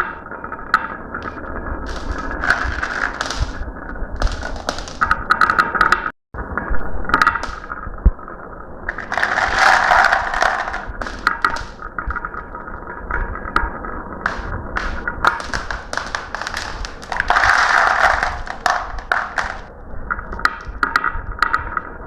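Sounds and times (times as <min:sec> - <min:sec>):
marbles rolling on a track: 0:00.0 - 0:06.0, 0:07.1 - 0:07.8, 0:08.9 - 0:12.4, 0:13.6 - 0:21.8
marbles clicking: 0:01.2 - 0:06.0, 0:07.1 - 0:07.7, 0:08.9 - 0:11.9, 0:14.2 - 0:19.7.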